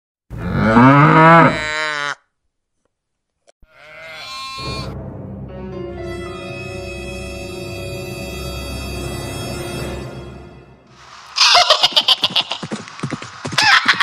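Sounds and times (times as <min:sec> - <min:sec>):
cow mooing: 0:00.4 - 0:02.2, 0:03.7 - 0:05.0
sheep bleating: 0:00.4 - 0:02.2, 0:03.6 - 0:05.0
background music with held notes: 0:04.4 - 0:10.9.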